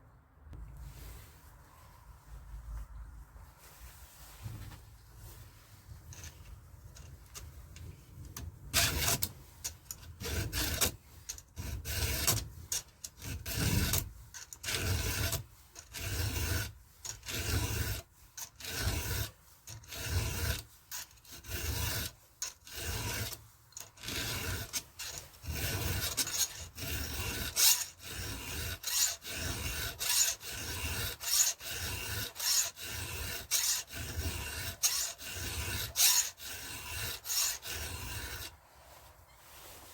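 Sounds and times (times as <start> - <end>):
file rasping on chainsaw chain: 8.7 - 38.6.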